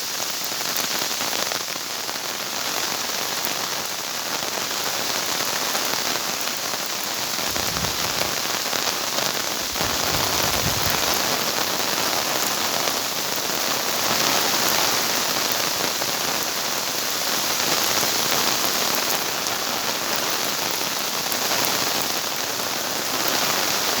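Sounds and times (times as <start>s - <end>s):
rain pattering: 0.0s - 24.0s
low rumbles: 7.4s - 8.6s, 9.6s - 11.3s.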